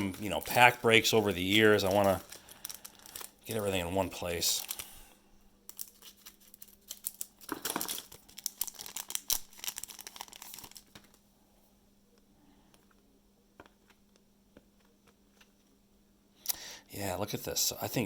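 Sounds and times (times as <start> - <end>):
plastic wrapper crinkling: 0.0 - 5.1, 5.7 - 11.2.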